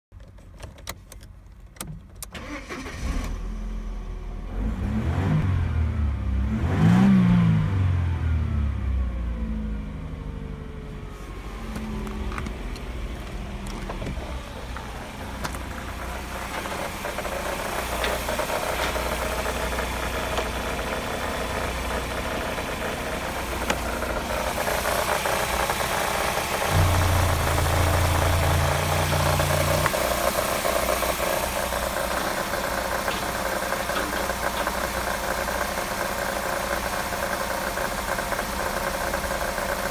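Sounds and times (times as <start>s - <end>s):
car engine starting and revving: 2.4s - 39.9s
car engine idling: 8.7s - 39.9s.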